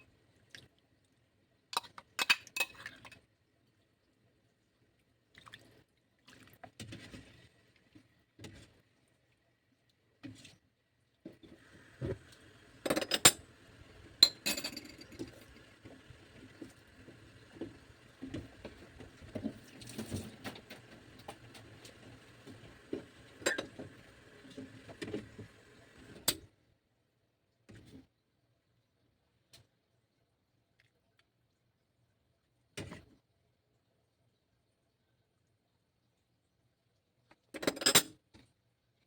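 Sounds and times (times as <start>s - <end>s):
dishes and utensils clinking: 12.8s - 13.5s, 14.2s - 15.4s, 23.4s - 23.8s.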